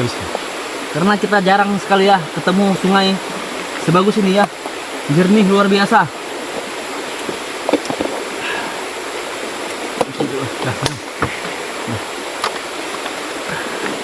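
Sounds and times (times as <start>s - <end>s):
river flowing over rocks: 0.0s - 14.0s
faint voices: 10.1s - 12.1s.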